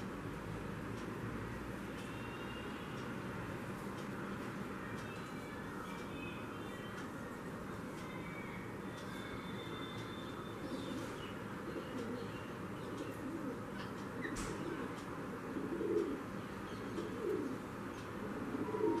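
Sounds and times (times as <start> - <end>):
bird low calls: 8.0 - 19.0.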